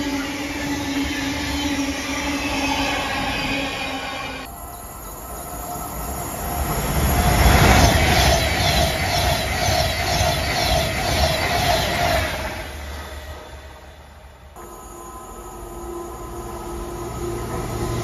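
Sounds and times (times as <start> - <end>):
train wheels rushing on rail: 0.0 - 18.0
train whine: 0.0 - 18.0
train wheel clatter: 5.6 - 13.8.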